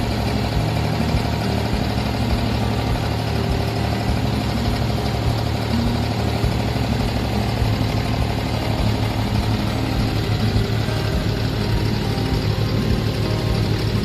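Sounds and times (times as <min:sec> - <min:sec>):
boat diesel engine rumbling: 0:00.0 - 0:14.0.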